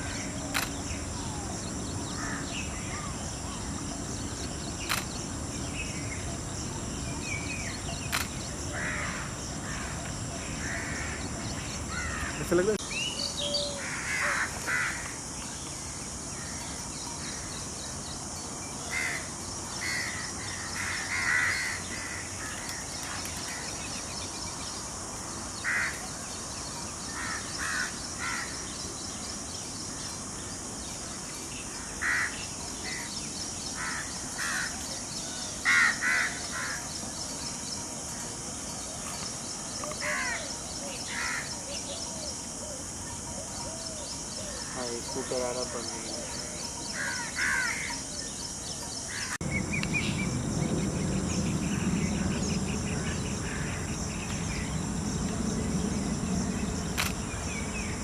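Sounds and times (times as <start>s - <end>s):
crows cawing: 2.2s - 3.0s, 8.7s - 10.0s, 10.6s - 11.2s, 11.9s - 12.5s, 13.8s - 15.1s, 18.9s - 22.5s, 25.6s - 26.0s, 32.0s - 32.4s, 33.8s - 34.7s, 35.6s - 36.8s, 47.0s - 47.9s.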